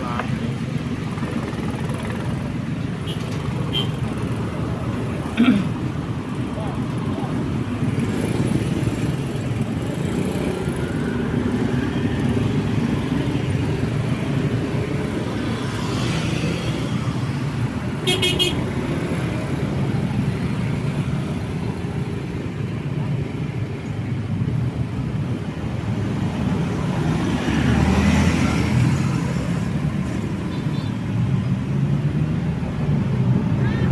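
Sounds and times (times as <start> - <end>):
road traffic rumble: 0.0 - 33.9
vehicle passing: 26.2 - 30.4.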